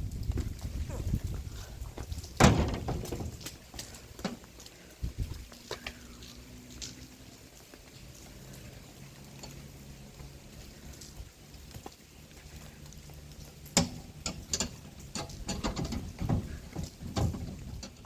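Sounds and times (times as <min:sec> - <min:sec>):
sharp clicks and knocks: 0:02.0 - 0:04.5, 0:13.6 - 0:18.0.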